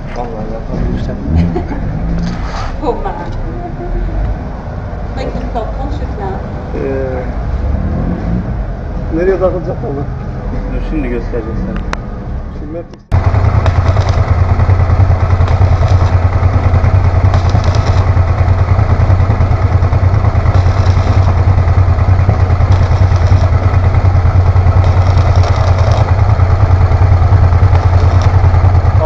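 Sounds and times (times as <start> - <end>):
motorcycle engine idling: 13.1 - 29.0
short hissing crackles: 20.3 - 23.8, 27.6 - 28.5.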